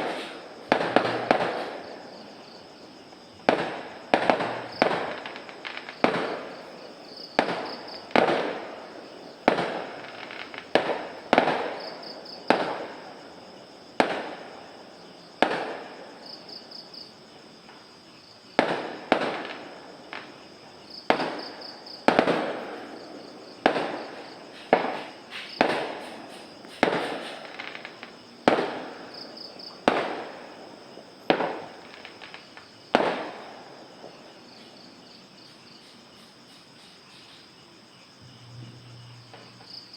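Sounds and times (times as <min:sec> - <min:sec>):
fireworks bangs: 0:00.0 - 0:02.6, 0:03.3 - 0:13.4, 0:14.0 - 0:14.7, 0:15.4 - 0:16.2, 0:18.6 - 0:20.4, 0:21.1 - 0:34.3, 0:38.2 - 0:39.9.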